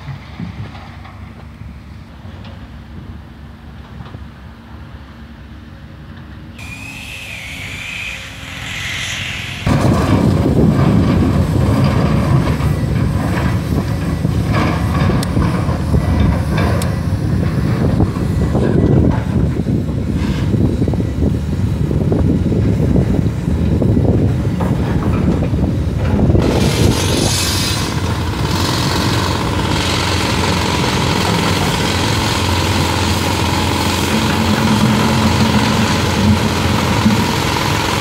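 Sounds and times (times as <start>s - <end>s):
track clanking and rattling: 0.0s - 2.9s, 6.2s - 38.0s
engine low rumble: 0.0s - 38.0s
wavering squeal: 6.6s - 9.7s.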